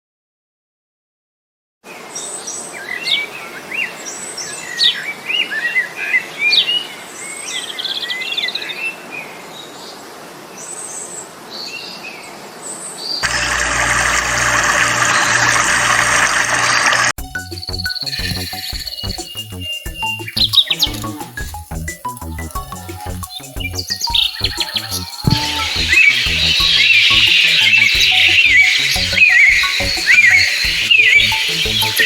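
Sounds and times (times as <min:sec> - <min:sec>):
birds chirping and singing: 0:17.2 - 0:32.0.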